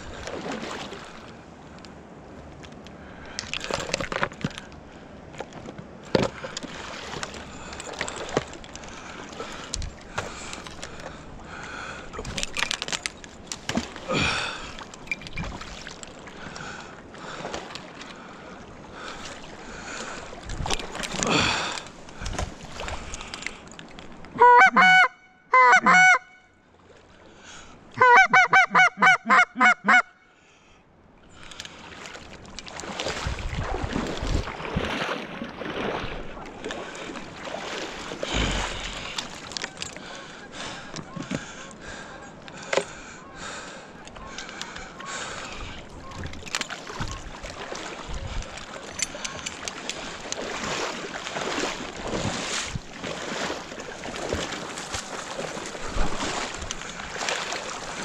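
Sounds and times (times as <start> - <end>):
goose honks: 24.4 - 26.4, 28.0 - 30.1.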